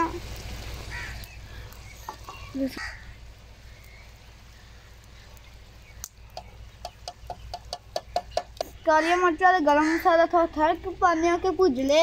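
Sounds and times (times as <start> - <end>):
curry sizzling in a pot: 0.0 - 12.0.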